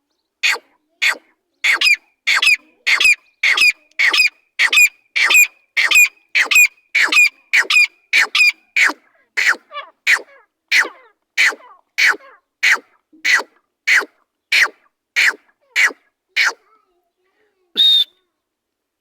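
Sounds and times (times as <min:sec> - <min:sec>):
francolin calling: 0:00.5 - 0:08.7.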